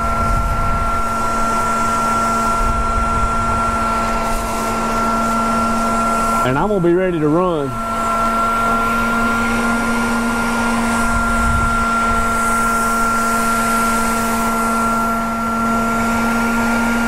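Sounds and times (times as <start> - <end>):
vacuum motor whining: 0.0 - 17.0
rushing suction hiss: 3.7 - 15.9.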